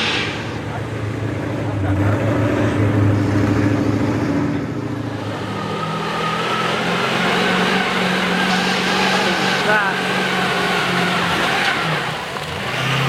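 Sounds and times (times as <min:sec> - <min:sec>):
diesel truck engine revving: 0:00.0 - 0:13.0.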